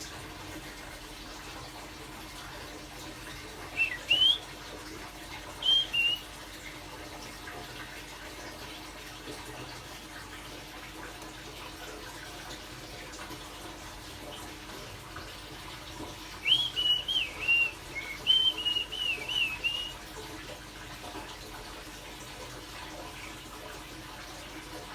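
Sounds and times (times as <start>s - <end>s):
bird whistling song: 3.7s - 4.4s, 5.6s - 6.2s, 16.4s - 20.0s.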